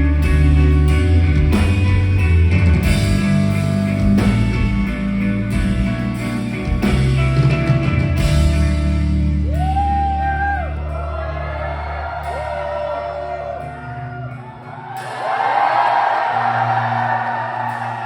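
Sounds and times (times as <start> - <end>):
live rock band playing: 0.0 - 11.2.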